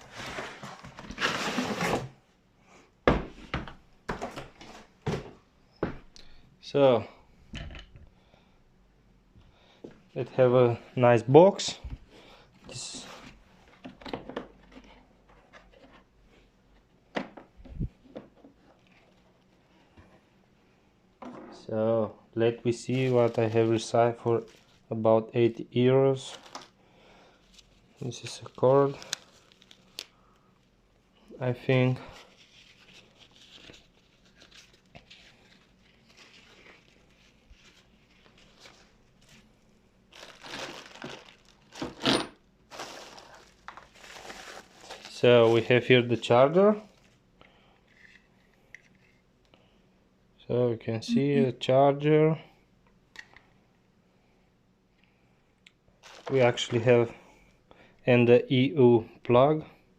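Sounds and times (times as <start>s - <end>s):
packaging crinkling and rustling: 26.1s - 26.8s, 27.6s - 30.1s, 32.2s - 45.7s, 56.0s - 56.8s.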